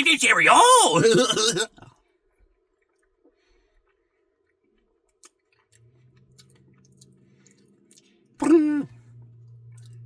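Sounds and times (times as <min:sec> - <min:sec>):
short loud voiced sound: 0:00.0 - 0:01.7
chewing and wet mouth clicks: 0:03.8 - 0:08.2.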